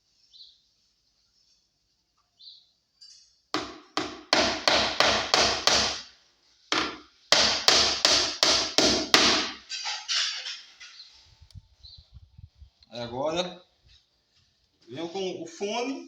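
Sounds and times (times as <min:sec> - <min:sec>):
hammer striking nail into wood: 0:03.6 - 0:06.1, 0:06.7 - 0:09.6.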